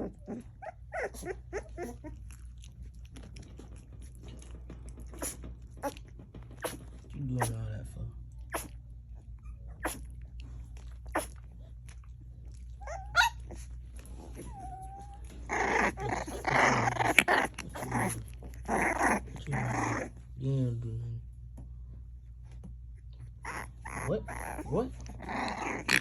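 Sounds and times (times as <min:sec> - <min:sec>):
puppy whining: 0:00.0 - 0:07.6, 0:08.3 - 0:20.4, 0:22.5 - 0:26.0
puppy growling: 0:00.0 - 0:20.8, 0:23.0 - 0:26.0
puppy sneezing: 0:06.6 - 0:07.6, 0:08.5 - 0:08.8, 0:09.8 - 0:10.1, 0:11.1 - 0:11.4.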